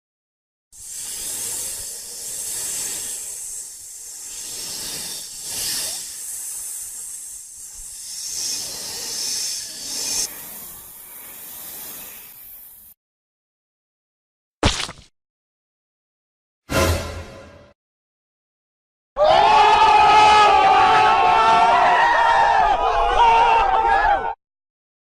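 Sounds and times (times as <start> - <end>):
rushing hiss: 0.8 - 13.0.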